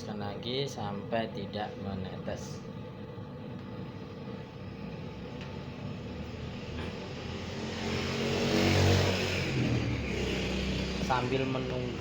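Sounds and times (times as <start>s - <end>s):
vehicle engine passing: 6.0s - 12.0s.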